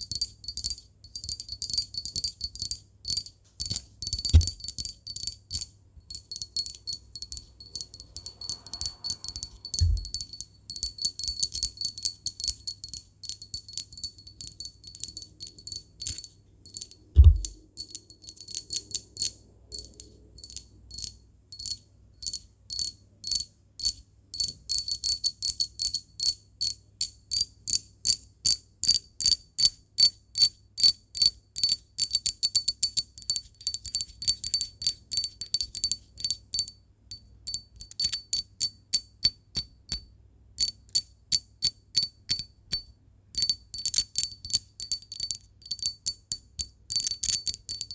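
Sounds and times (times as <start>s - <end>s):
glass tapping with high ring: 0.2s - 5.3s, 6.1s - 22.9s, 31.6s - 47.9s
dull thumps: 17.2s - 17.6s.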